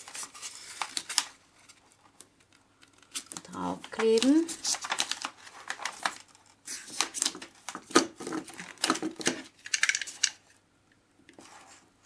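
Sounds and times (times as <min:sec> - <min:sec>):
plastic film crackling: 0:00.0 - 0:01.4, 0:02.8 - 0:09.9.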